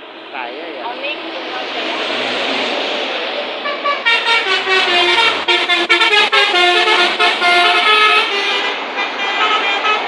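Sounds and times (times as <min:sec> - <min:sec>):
bus musical horn melody: 0:03.6 - 0:10.0.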